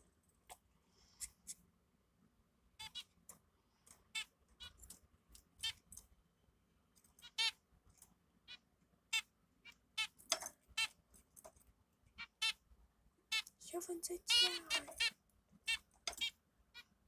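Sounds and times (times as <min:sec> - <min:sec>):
baby birds peeping: 0:02.8 - 0:03.2, 0:03.9 - 0:06.0, 0:07.2 - 0:07.6, 0:08.4 - 0:11.0, 0:12.1 - 0:17.0.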